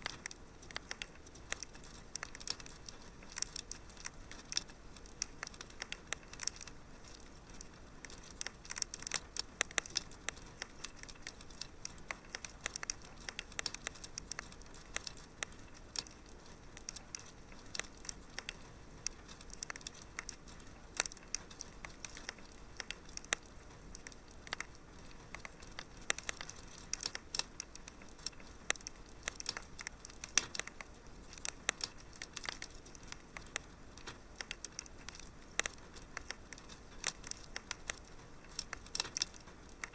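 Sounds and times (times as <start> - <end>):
faint fire hiss: 0.0 - 39.9
wood fire crackling and popping: 0.0 - 39.9.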